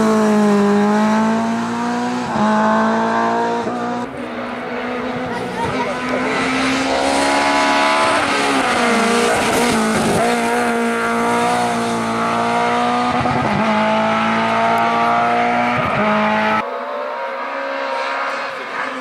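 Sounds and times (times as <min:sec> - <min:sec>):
rally car engine revving high: 0:00.0 - 0:19.0.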